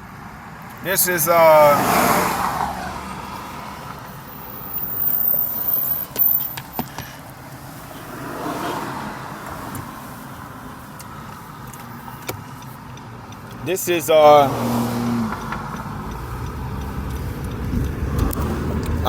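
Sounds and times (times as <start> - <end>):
road traffic noise: 0.0 - 19.0
sharp clicks: 15.1 - 19.0.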